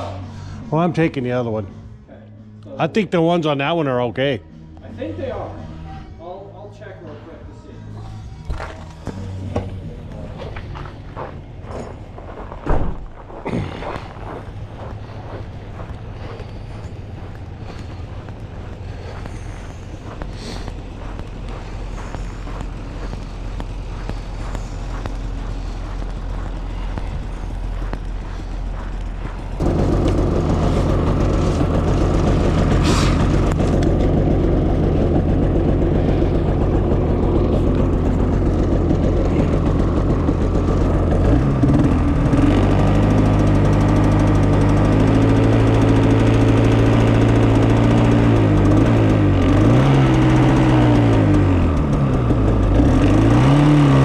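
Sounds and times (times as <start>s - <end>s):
vehicle engine revving: 8.2s - 54.0s.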